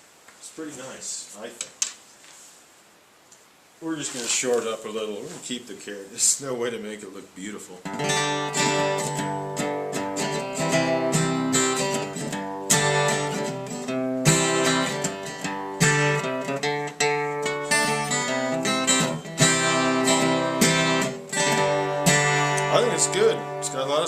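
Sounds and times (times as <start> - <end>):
acoustic guitar strumming: 7.8 - 24.0.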